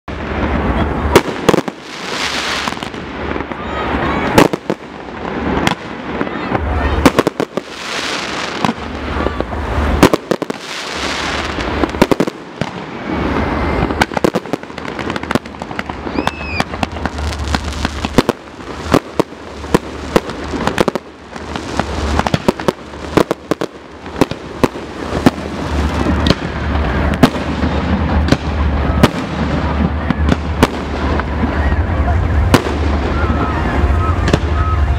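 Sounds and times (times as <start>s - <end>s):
fireworks bangs and crackles: 0.0s - 34.9s
continuous low rumble: 8.4s - 34.9s.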